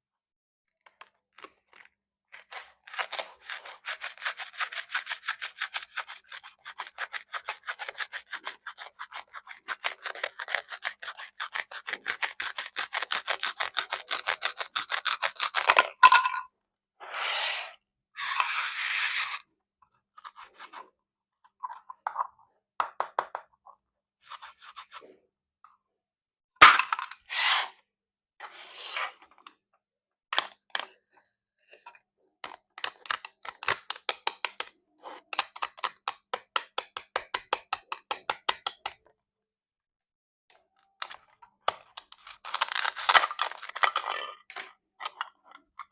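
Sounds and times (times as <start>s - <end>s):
plastic knife cutting toy fruit: 1.4s - 15.9s, 18.2s - 21.0s, 32.5s - 39.0s, 40.8s - 45.9s
scraping and rubbing: 17.0s - 20.9s, 23.7s - 25.2s, 26.7s - 27.8s, 28.4s - 29.4s.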